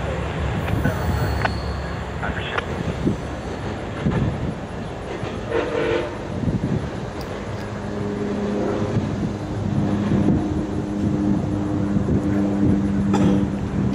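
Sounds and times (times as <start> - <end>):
train rumbling on rails: 0.0 - 13.9.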